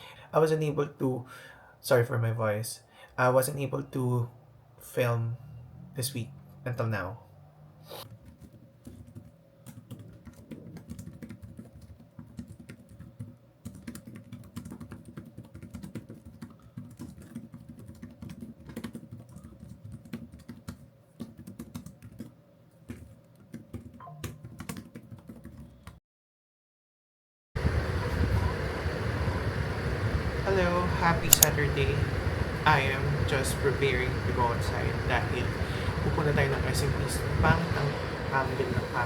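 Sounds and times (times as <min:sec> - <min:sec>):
typing on keyboard: 0:08.1 - 0:26.0.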